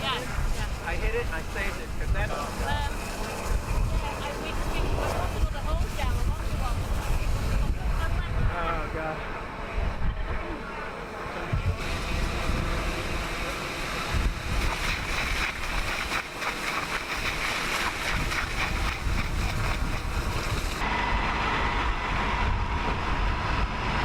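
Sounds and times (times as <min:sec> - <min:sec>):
steady hum: 0:00.0 - 0:24.0
wind buffeting microphone: 0:00.0 - 0:24.0.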